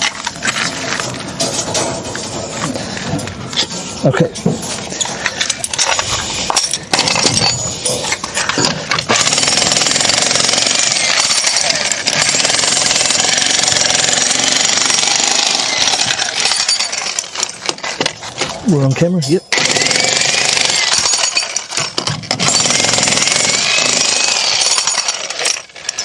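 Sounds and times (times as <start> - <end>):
jackhammer hammering: 8.6 - 17.8, 19.5 - 26.0.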